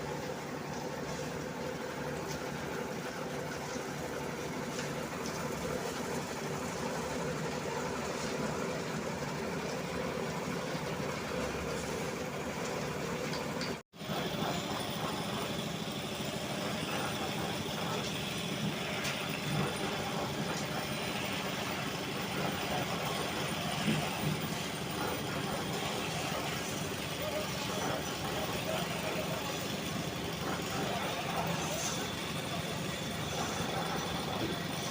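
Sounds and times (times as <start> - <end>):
heavy machinery engine running: 2.6 - 34.9.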